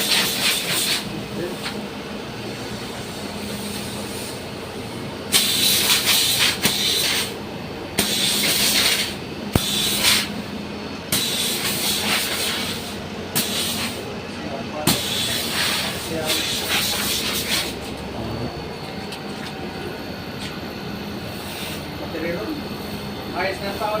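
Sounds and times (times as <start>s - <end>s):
pressure washer spraying: 8.0s - 10.3s
motor hum: 17.7s - 21.3s.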